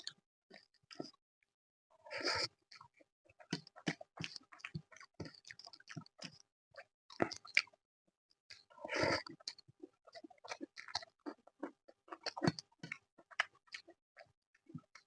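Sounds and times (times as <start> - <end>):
wet chewing and smacking: 2.2 - 7.8, 8.5 - 15.0.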